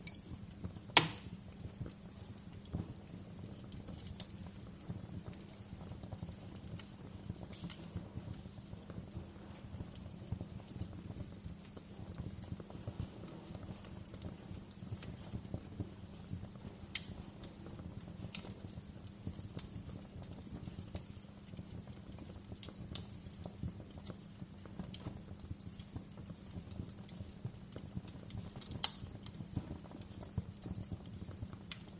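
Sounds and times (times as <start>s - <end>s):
wood fire crackling: 0.0s - 31.9s.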